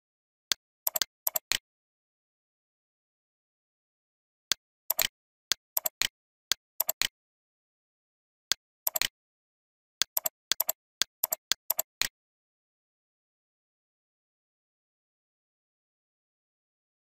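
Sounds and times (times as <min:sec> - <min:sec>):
computer mouse clicking: 0:00.9 - 0:01.6, 0:04.9 - 0:06.1, 0:06.8 - 0:07.1, 0:08.9 - 0:09.1, 0:10.0 - 0:12.1.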